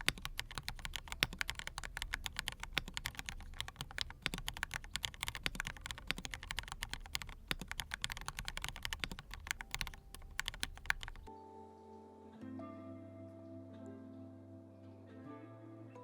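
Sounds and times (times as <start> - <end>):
mechanical keyboard typing: 0.0 - 11.3.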